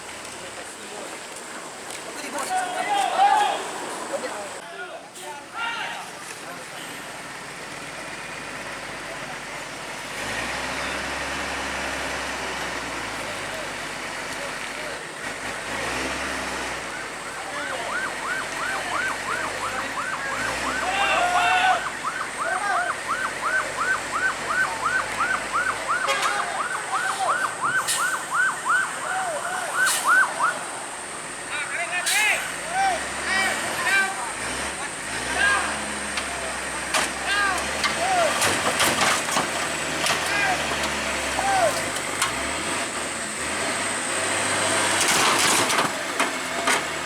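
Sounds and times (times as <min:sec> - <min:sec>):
heavy truck engine humming: 0:00.0 - 0:47.0
outdoor noise: 0:00.0 - 0:47.0
emergency siren yelping: 0:16.9 - 0:31.1.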